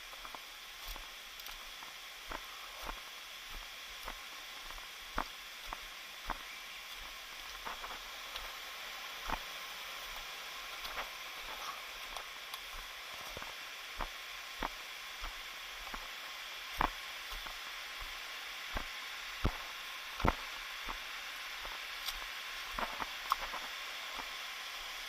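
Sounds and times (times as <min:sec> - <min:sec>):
rushing stream water: 0:00.0 - 0:25.0.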